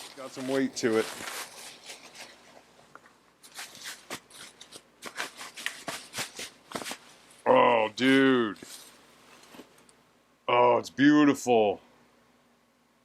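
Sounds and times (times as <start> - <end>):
packaging rustling and crinkling: 0.0 - 2.8, 3.4 - 7.2.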